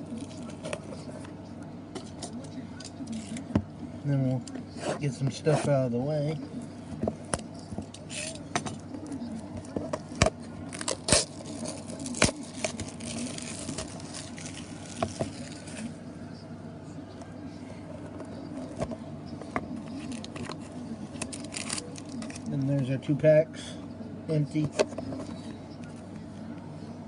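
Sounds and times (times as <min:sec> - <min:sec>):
faint steady hum: 0:00.0 - 0:27.0
wrapper crinkling and rustling: 0:10.7 - 0:16.0, 0:21.2 - 0:22.5.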